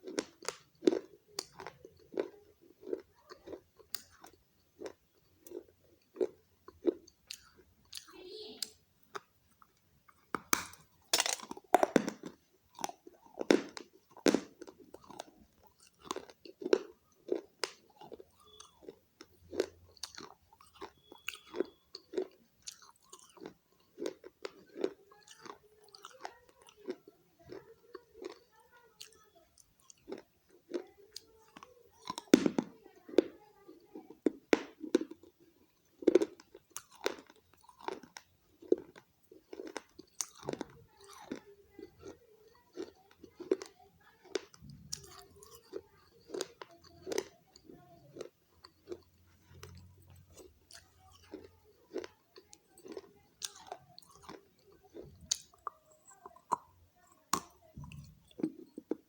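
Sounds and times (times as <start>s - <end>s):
person chewing crunchy clay: 0.0s - 59.0s.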